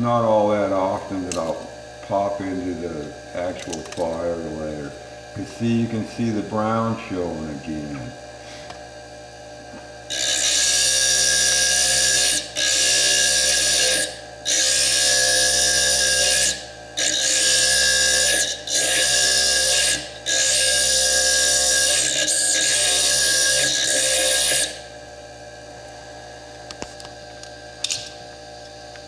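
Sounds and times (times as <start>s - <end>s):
disc grinding stone: 10.1s - 24.9s.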